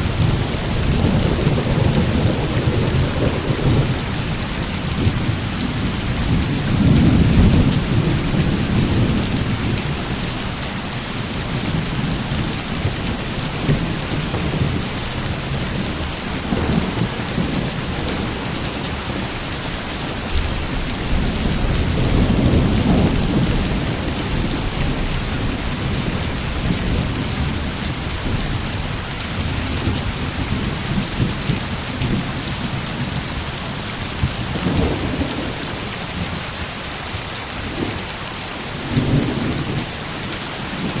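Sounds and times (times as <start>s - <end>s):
thunder rolling: 0.0s - 10.2s
heavy rain falling: 0.0s - 41.0s.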